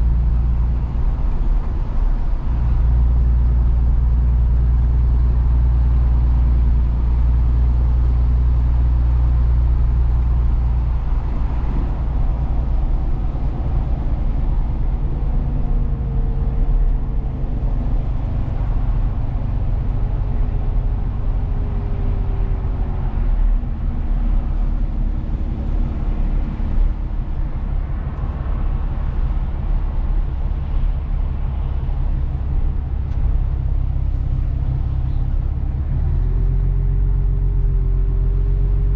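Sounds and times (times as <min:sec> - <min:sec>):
road rumble: 0:00.0 - 0:38.9
truck engine hum: 0:00.0 - 0:38.9.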